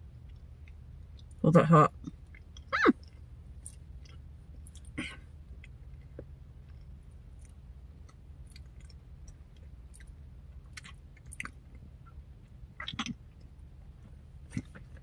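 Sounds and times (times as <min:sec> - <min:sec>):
low steady hum: 0:00.0 - 0:15.0
chewing mouth clicks and smacks: 0:02.0 - 0:12.2, 0:12.8 - 0:13.5.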